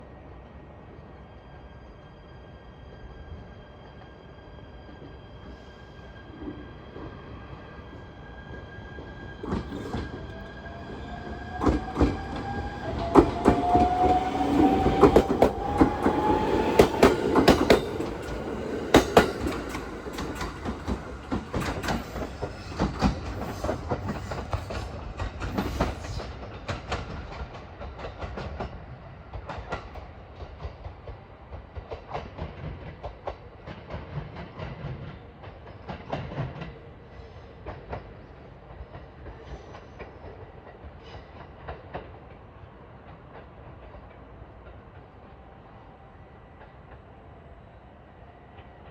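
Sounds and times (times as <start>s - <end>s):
train whine rising in pitch: 1.1s - 26.5s
train clickety-clack on rails: 6.2s - 48.9s.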